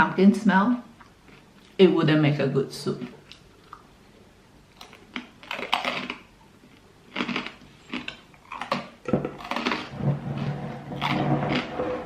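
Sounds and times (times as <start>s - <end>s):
crunching bites: 4.8s - 12.0s.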